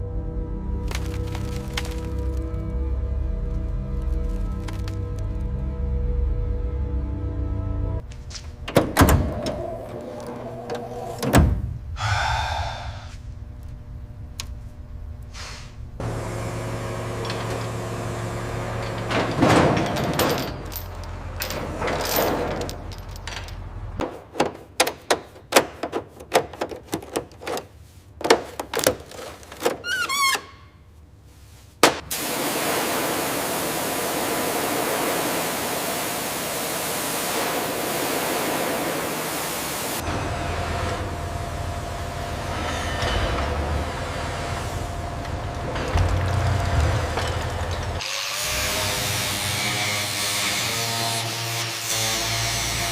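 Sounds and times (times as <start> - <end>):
steady low hum: 7.6 - 19.6
mechanical knocks and thunks: 8.4 - 11.9, 18.7 - 29.8
steady hiss: 31.3 - 40.0.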